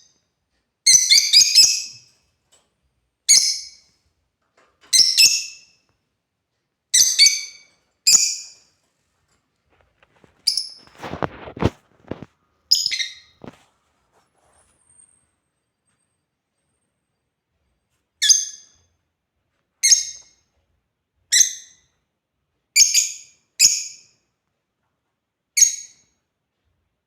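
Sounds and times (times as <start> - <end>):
scratchy rustling: 9.0 - 12.4, 13.3 - 14.9
lovebirds chirping: 12.7 - 13.4.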